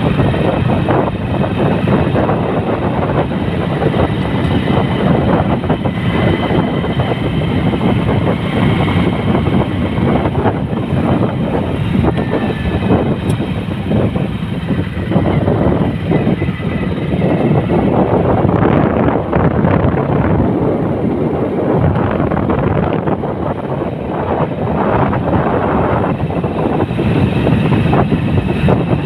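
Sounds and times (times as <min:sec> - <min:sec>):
vehicle rumbling: 0:00.0 - 0:29.0.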